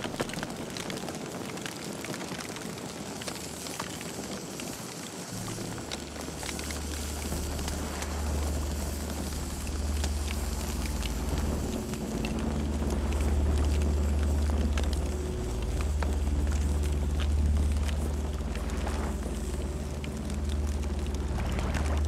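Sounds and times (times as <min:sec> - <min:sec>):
campfire crackling and popping: 0:00.0 - 0:22.0
low rumble: 0:05.3 - 0:22.0.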